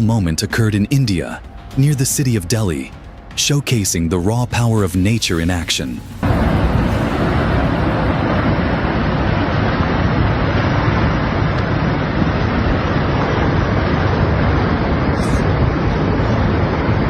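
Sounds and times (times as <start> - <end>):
rushing rumble of falling rock: 6.2 - 11.8.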